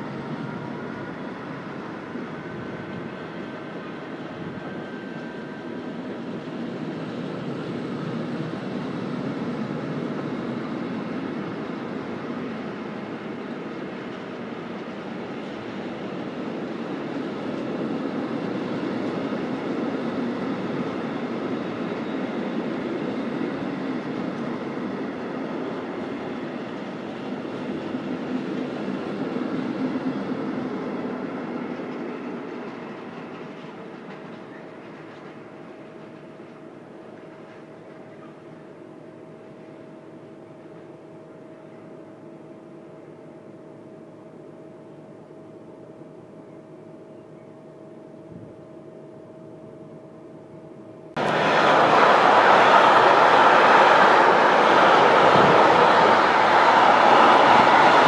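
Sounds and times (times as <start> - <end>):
freight train wheels rumbling: 0.0 - 38.7, 51.2 - 58.0.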